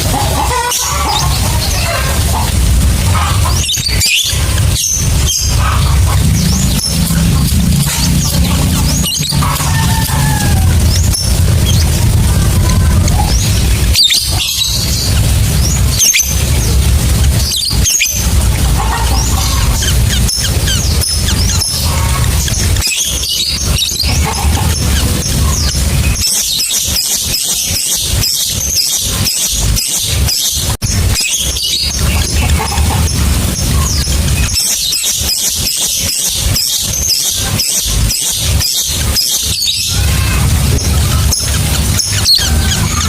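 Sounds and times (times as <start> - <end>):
steady low hum: 0.0 - 27.3, 28.0 - 43.0
lovebird chirping: 0.5 - 43.0
low rumble: 1.1 - 26.3, 39.0 - 43.0.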